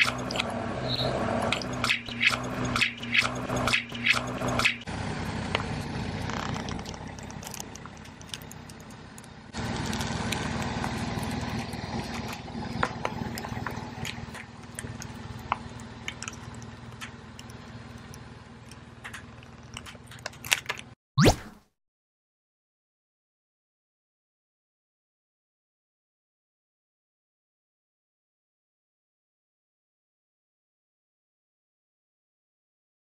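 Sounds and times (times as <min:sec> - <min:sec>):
car engine idling: 0:00.0 - 0:20.9
plastic bottle crackling under tyre: 0:06.2 - 0:09.0.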